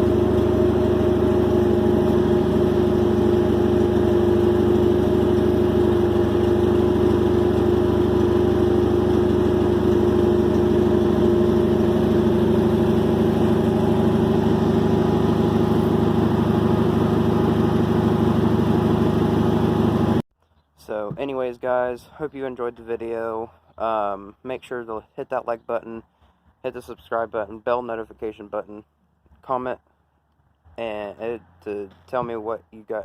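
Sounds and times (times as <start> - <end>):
race car engine idling: 0.0 - 20.2.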